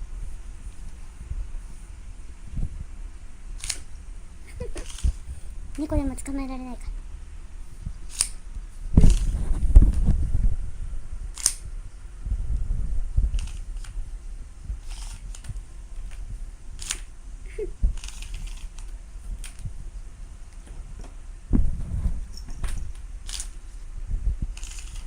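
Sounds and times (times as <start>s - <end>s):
tape measure blade snapping back: 3.6s - 3.9s, 8.1s - 8.4s, 11.4s - 11.7s, 16.8s - 17.1s, 23.2s - 23.6s, 24.6s - 25.0s
handling and bumping noise: 20.6s - 23.1s.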